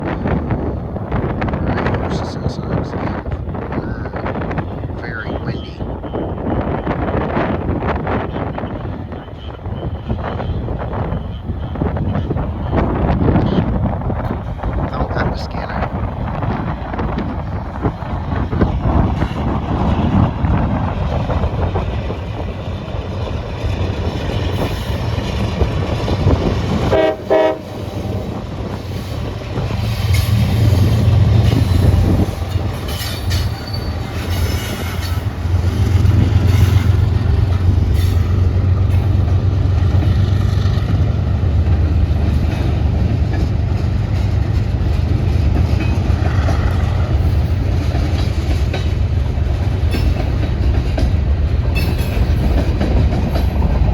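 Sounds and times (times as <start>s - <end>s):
locomotive engine rumble: 0.0s - 53.9s
train horn toot: 26.8s - 29.1s.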